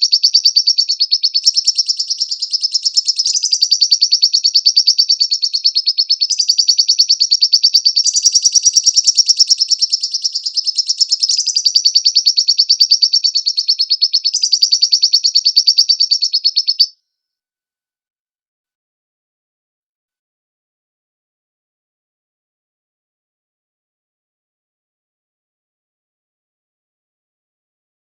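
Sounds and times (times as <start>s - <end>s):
lovebird chattering song: 0.0s - 17.0s.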